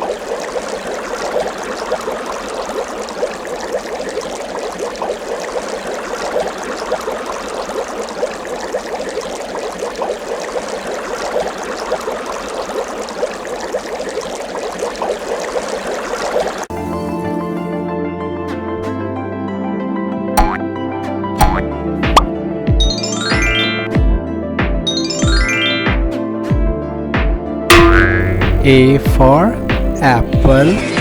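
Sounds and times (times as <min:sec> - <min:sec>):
water trickling and bubbling: 0:00.0 - 0:17.4, 0:20.4 - 0:20.6, 0:21.4 - 0:22.3, 0:27.7 - 0:30.8.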